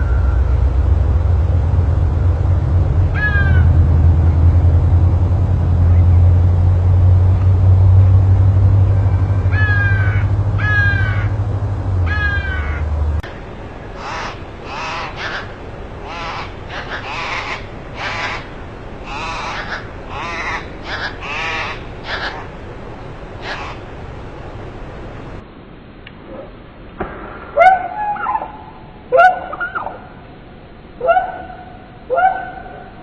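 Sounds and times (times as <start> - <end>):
steady low rumble: 0.0 - 33.0
downward-sliding bird calls: 8.9 - 11.4, 12.0 - 25.4
bird calling in quick succession: 23.4 - 23.8.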